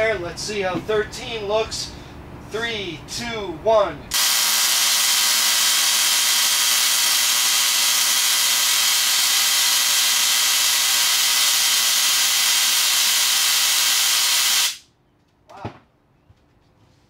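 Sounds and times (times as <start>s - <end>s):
tesla coil hissing buzz: 4.1s - 14.8s.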